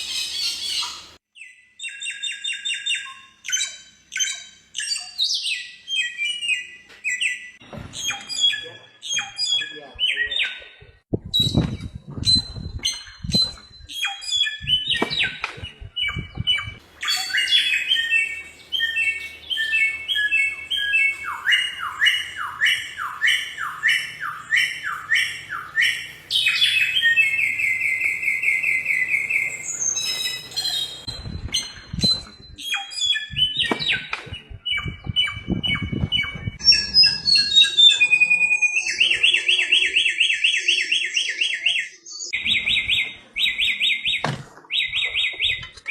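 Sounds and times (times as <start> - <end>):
bird singing whistled song: 0.0 - 10.7, 11.3 - 45.9.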